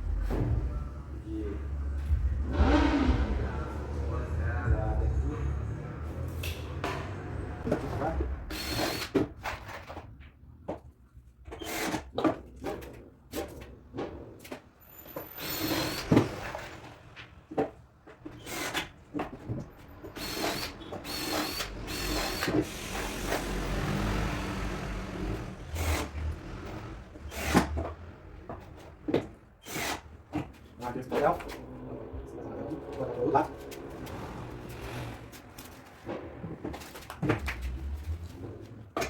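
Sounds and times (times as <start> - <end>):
power drill running: 8.5 - 9.2, 15.4 - 16.5, 18.4 - 18.8, 20.1 - 27.8.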